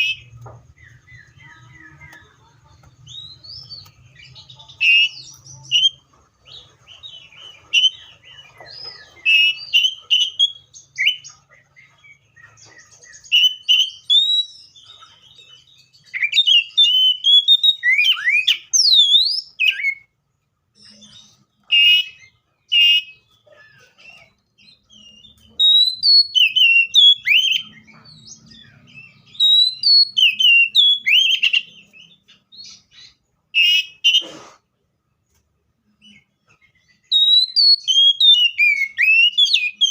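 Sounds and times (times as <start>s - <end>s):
bird singing whistled phrases: 8.8s - 11.3s, 12.8s - 14.9s, 15.9s - 20.1s, 20.9s - 27.8s, 28.7s - 34.2s, 36.9s - 39.9s.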